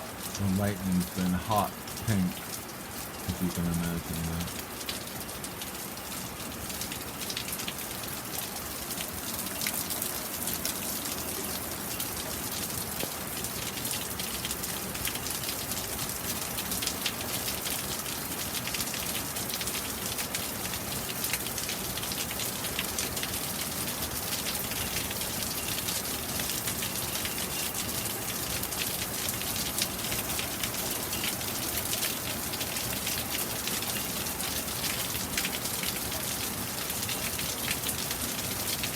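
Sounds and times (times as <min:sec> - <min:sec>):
rain hissing: 0:00.0 - 0:05.1
raindrops pattering on a surface: 0:00.0 - 0:38.9.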